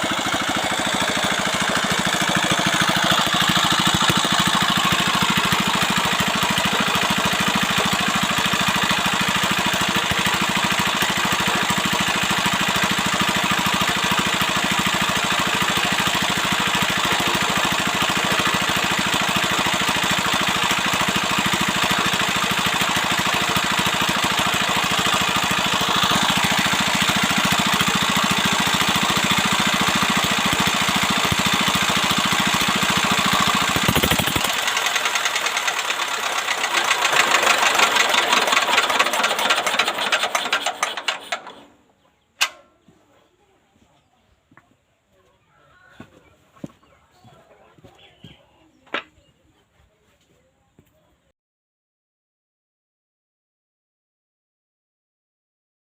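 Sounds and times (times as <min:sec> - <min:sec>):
diesel engine running: 0:00.0 - 0:41.7.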